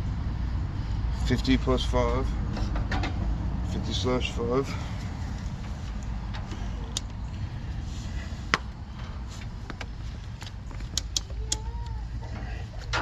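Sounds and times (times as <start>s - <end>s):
steady low hum: 0.0s - 13.0s
test leads clicking on terminals: 10.4s - 12.0s.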